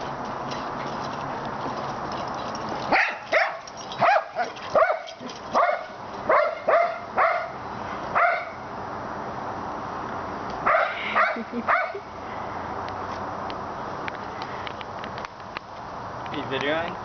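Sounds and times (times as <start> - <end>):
dog barking: 2.9 - 7.6, 8.2 - 8.6, 10.7 - 12.0.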